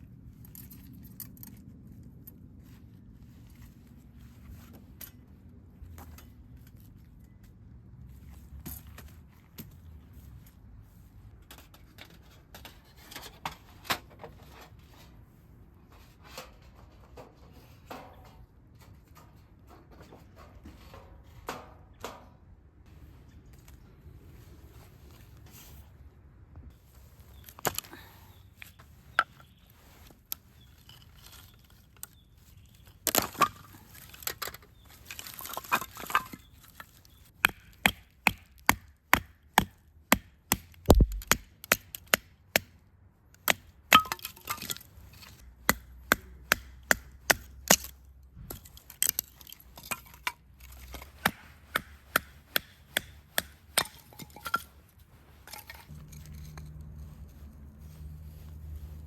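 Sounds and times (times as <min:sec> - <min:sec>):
wood scraping and rustling: 0:26.7 - 0:37.3, 0:48.4 - 0:59.0
wood chopping knocks: 0:40.9 - 0:41.4.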